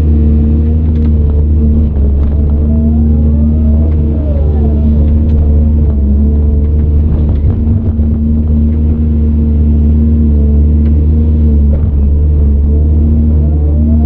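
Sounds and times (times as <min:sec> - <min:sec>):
excavator diesel engine drone: 0:00.0 - 0:14.0
high whine: 0:01.1 - 0:10.3.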